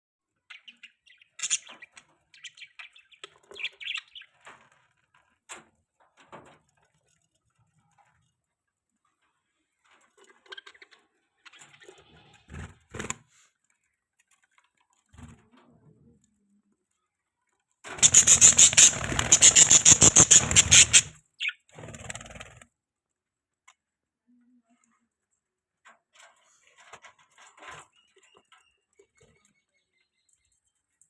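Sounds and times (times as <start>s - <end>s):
rapid rustling of birds: 0.4s - 22.7s
budgies scratching: 18.0s - 21.5s
budgie chirp: 18.0s - 21.6s.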